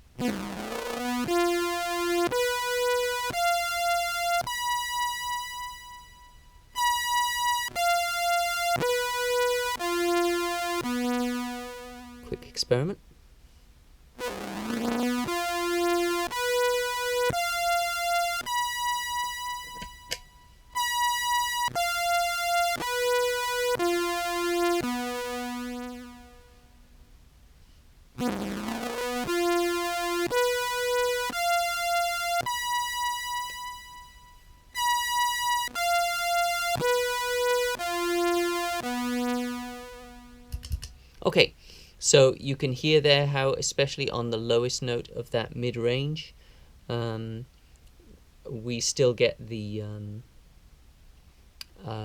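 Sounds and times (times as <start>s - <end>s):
synth tone playing held notes: 0.2s - 13.0s, 14.2s - 26.8s, 28.2s - 40.6s.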